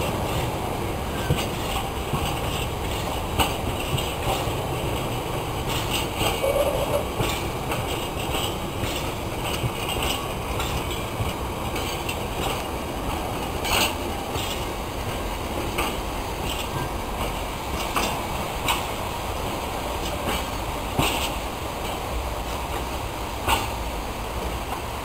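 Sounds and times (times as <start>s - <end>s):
freight train rumbling past: 0.0s - 25.0s
wagon knocks and clanks: 1.1s - 15.2s.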